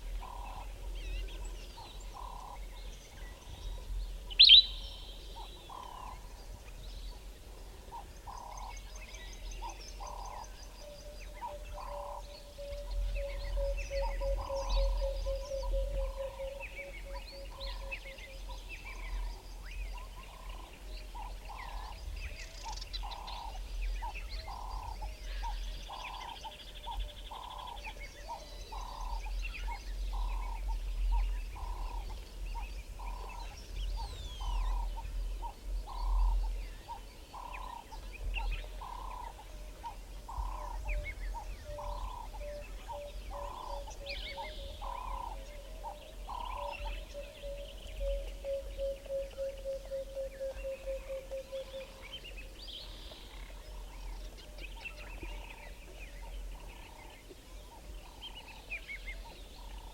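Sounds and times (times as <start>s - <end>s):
low pulsed bird trill: 0.0s - 7.2s, 7.9s - 59.9s
birds chirping and whistling: 4.3s - 6.1s, 8.3s - 57.1s.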